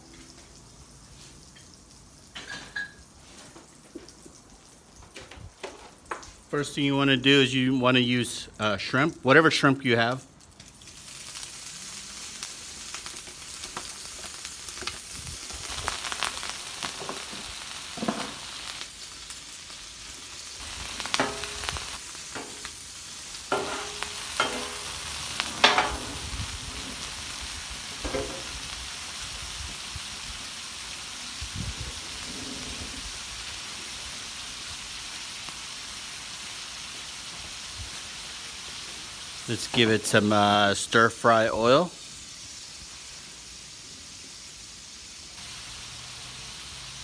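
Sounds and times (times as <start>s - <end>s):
shrimp sizzling on griddle: 10.6s - 47.0s
metal spatula scraping griddle: 21.0s - 22.7s, 23.5s - 27.2s, 32.0s - 33.1s.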